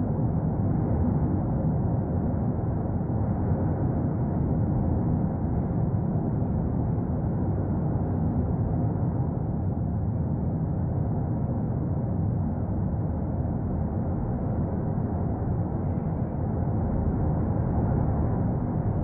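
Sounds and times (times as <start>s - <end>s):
volcano erupting low rumble: 0.0s - 19.0s.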